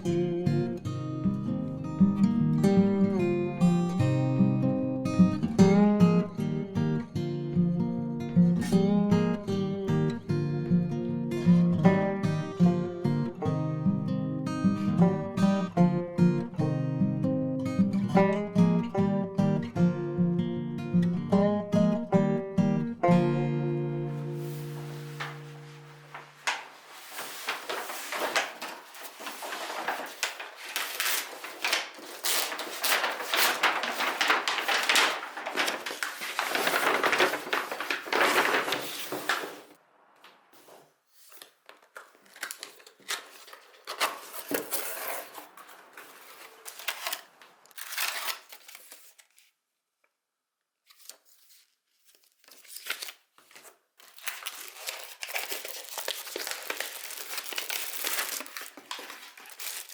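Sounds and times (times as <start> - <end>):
handling noises: 24.2 - 49.2, 52.6 - 59.9
paper and plastic crinkling: 24.2 - 49.5, 50.9 - 59.9.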